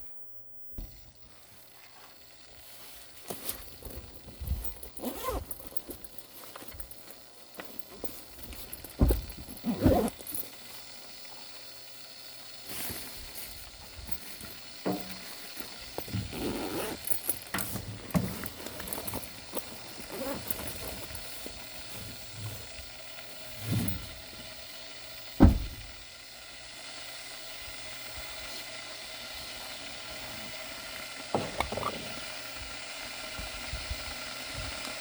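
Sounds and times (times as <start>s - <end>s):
knocks and rustles of handling: 0.8s - 11.2s, 12.6s - 24.5s
heavy thumps: 3.6s - 10.5s, 25.4s - 25.9s.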